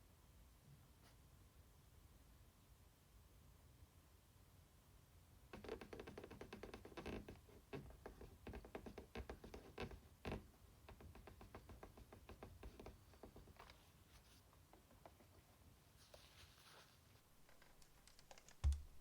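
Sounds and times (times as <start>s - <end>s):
scratchy rubbing on plastic case: 5.6s - 18.7s.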